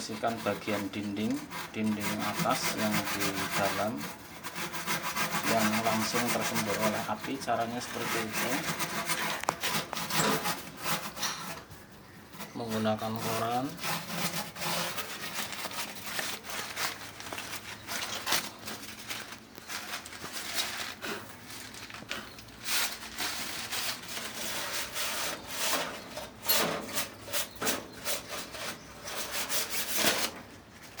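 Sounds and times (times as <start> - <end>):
newspaper scrubbing metal wall: 0.0 - 31.0.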